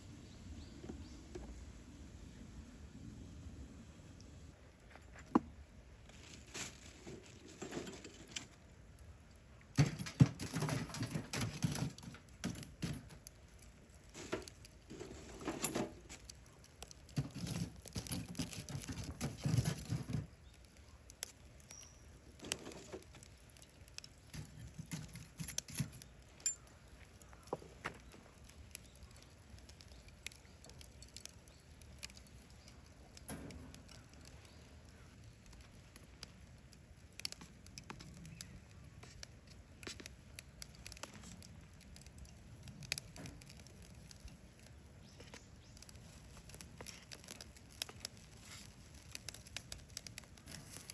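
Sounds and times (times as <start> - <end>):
rustling and scraping: 4.8 - 8.7, 9.8 - 13.3, 14.0 - 16.4, 17.0 - 20.6, 22.4 - 28.6, 42.9 - 50.9
light clicks and clinks: 21.1 - 35.6.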